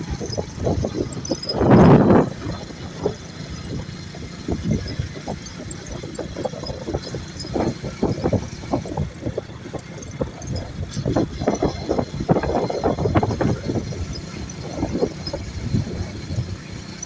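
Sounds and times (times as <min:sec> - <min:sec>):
gusty wind bursts: 0:00.0 - 0:17.0
vehicle rumble: 0:00.0 - 0:17.0.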